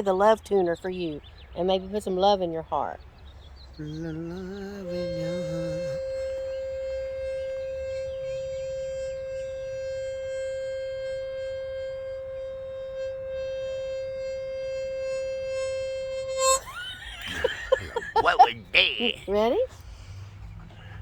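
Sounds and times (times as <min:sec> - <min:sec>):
breath whistle long note: 0:03.9 - 0:16.7.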